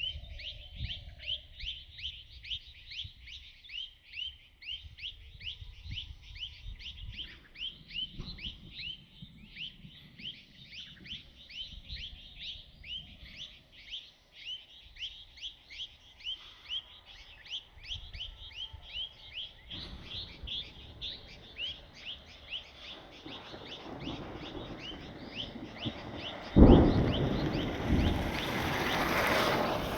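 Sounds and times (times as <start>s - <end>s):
bird chirping: 0.0s - 29.9s
low rumble: 19.9s - 29.9s.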